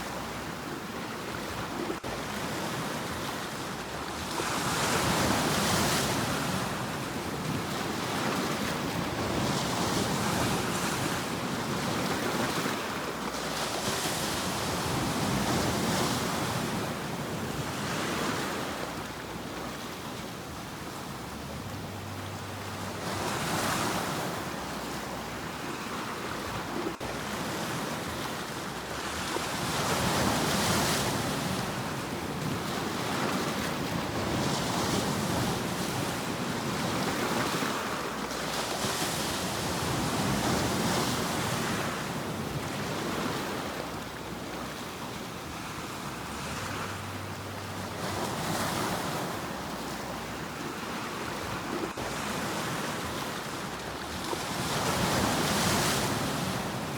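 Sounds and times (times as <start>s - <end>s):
sea waves breaking: 0.0s - 56.9s.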